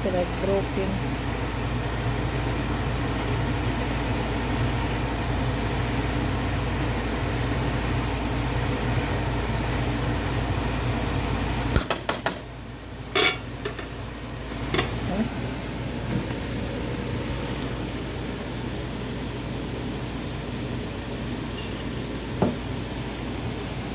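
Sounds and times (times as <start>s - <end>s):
low machine hum: 0.0s - 23.9s
utensil clinking on cookware: 13.2s - 13.9s.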